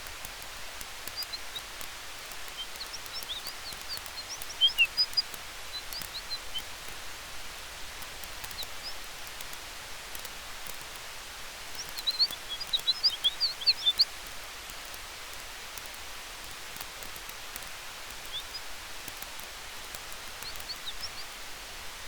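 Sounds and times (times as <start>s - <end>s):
campfire crackling: 0.0s - 22.0s
wind through trees: 0.0s - 22.0s
bird chirping: 1.0s - 7.0s, 8.2s - 9.4s, 11.7s - 14.2s, 18.1s - 21.4s.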